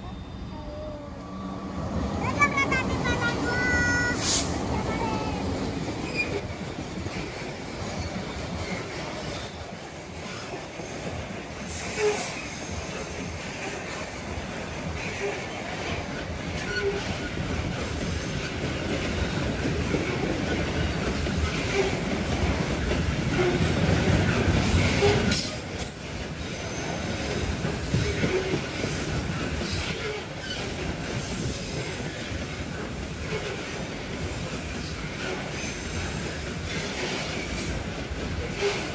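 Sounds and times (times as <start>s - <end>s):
train wheels rumbling on rails: 0.0s - 38.9s
wheels squealing: 6.0s - 6.6s, 15.0s - 17.5s, 26.4s - 29.0s.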